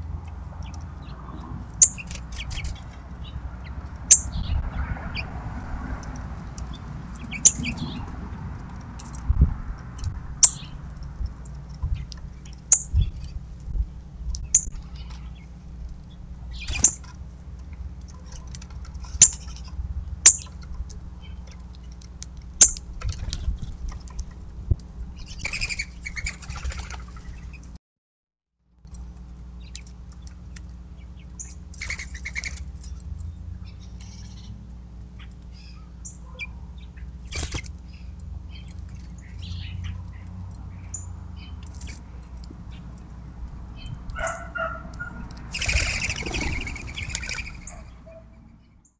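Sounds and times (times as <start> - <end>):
low background rumble: 0.0 - 27.8
small birds chirping: 0.5 - 5.4, 6.5 - 8.2, 10.0 - 10.8, 11.4 - 17.3, 18.0 - 23.8, 25.1 - 27.7, 29.5 - 48.9.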